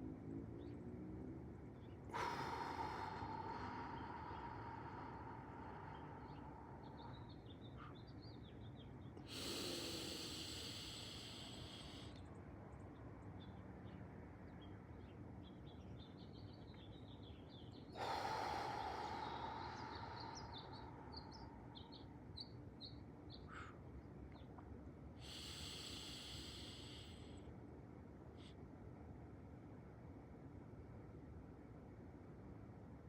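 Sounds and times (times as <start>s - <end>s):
small birds chirping: 1.5s - 27.4s
soft hissing breath: 1.8s - 8.2s, 9.2s - 12.5s, 17.7s - 22.6s, 23.4s - 23.9s, 25.1s - 27.6s, 28.2s - 28.8s
person breathing loudly: 2.1s - 8.0s, 9.2s - 12.2s, 17.9s - 22.0s, 25.2s - 27.5s.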